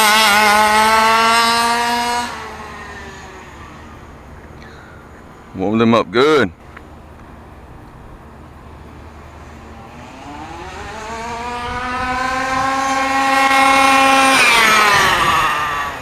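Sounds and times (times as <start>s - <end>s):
small two-stroke engine at full throttle: 0.0s - 5.1s, 8.3s - 16.0s.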